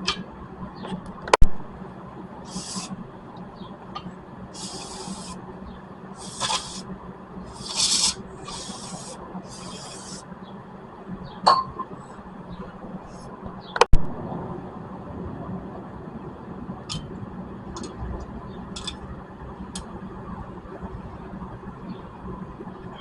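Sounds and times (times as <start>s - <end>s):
rasping scrubbing strokes: 7.5s - 10.2s.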